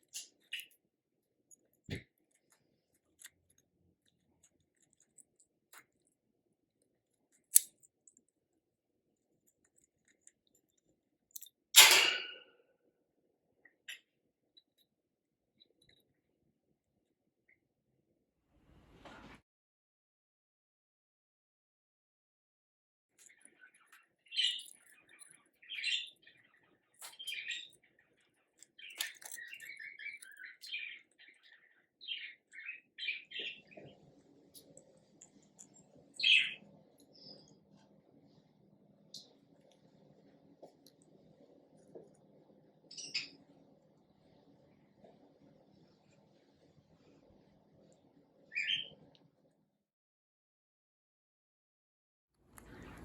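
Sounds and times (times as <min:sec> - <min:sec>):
parrot chirping and chattering: 0:23.2 - 0:37.5, 0:48.5 - 0:48.9.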